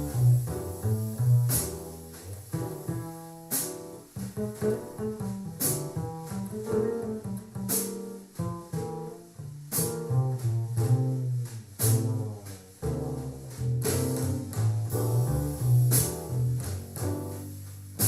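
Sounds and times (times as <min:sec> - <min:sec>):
double bass line: 0:00.0 - 0:18.0
jazz over loudspeaker: 0:09.7 - 0:18.0.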